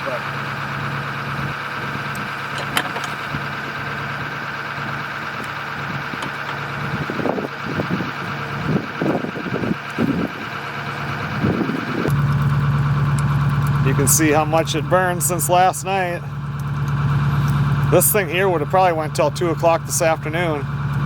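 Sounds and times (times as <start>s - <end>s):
steady mechanical drone: 0.0s - 21.0s
clunks: 1.7s - 3.8s, 4.7s - 7.5s.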